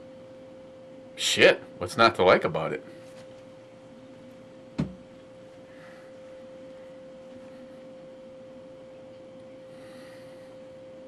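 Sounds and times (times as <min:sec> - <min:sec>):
steady hum: 0:00.0 - 0:11.0
short knock: 0:04.8 - 0:05.0.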